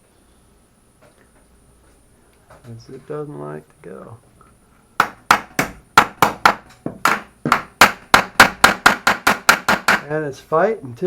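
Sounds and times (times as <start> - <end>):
wooden board being struck: 5.0 - 10.1.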